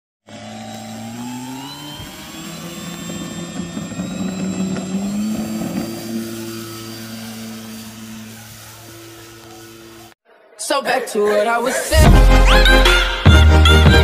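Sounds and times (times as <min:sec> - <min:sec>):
electric motor and propeller whine: 0:00.2 - 0:10.2.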